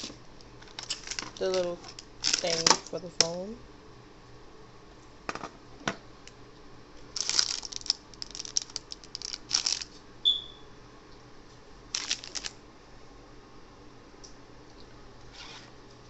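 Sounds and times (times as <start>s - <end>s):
plastic packaging crinkling: 0.0s - 3.0s, 7.1s - 10.0s, 11.9s - 12.6s.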